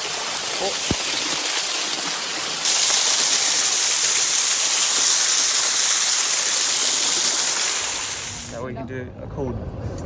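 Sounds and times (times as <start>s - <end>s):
waterfall rushing: 0.0s - 8.5s
high steady hiss: 0.0s - 8.6s.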